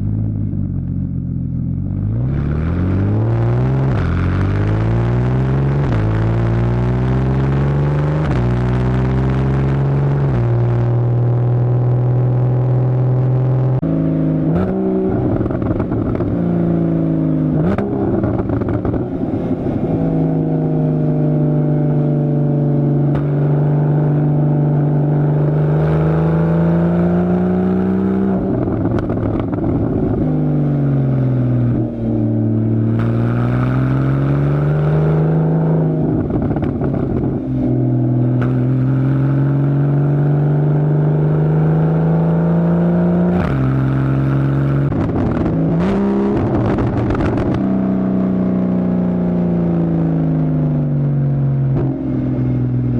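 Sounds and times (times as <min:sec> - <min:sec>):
car engine accelerating: 0:00.0 - 0:52.9
exhaust crackles: 0:27.8 - 0:34.4.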